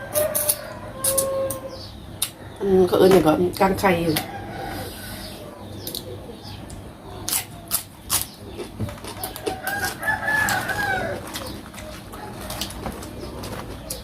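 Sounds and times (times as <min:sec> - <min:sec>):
rooster crowing: 0:00.0 - 0:01.8, 0:04.2 - 0:05.5, 0:09.2 - 0:12.9.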